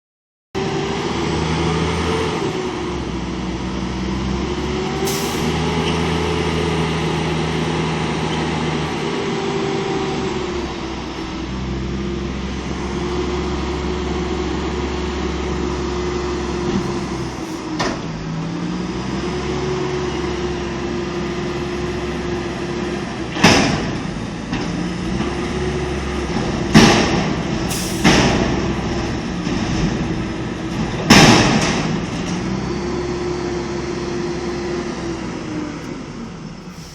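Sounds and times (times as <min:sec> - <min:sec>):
truck engine drone: 0:00.6 - 0:36.9
hydraulic whine: 0:04.4 - 0:07.3, 0:16.4 - 0:18.2, 0:35.8 - 0:36.9.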